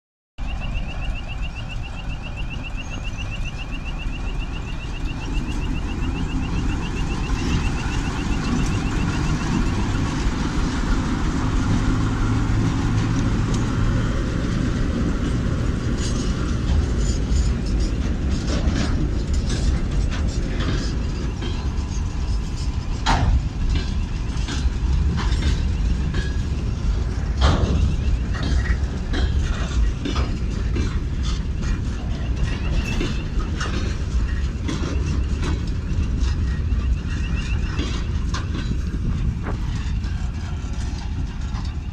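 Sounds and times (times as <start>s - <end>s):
pulsing electronic warning tone: 0.4s - 11.2s
train engine rumbling: 0.4s - 41.9s
train wheels clicking on track: 0.4s - 41.9s.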